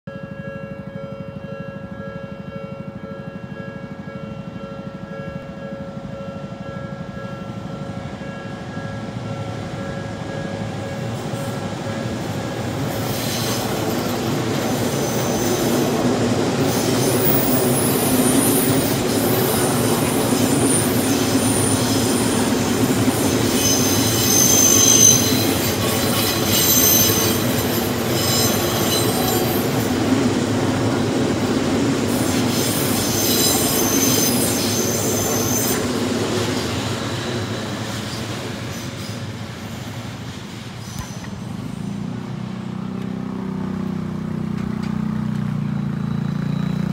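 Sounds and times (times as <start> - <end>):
level crossing warning bell: 0.1 - 12.5, 23.8 - 30.1
electric train running: 4.6 - 40.3
train wheels squealing: 12.8 - 30.1, 32.1 - 40.0, 40.7 - 41.9, 45.7 - 46.9.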